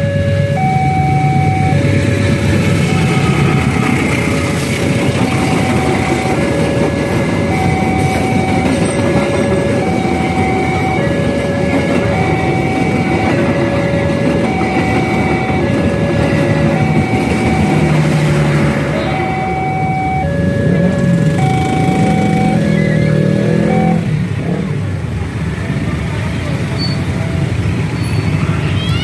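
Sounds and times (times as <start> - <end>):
two-tone crossing warning alarm: 0.0 - 24.3
train wheels clattering over rails: 1.8 - 19.0.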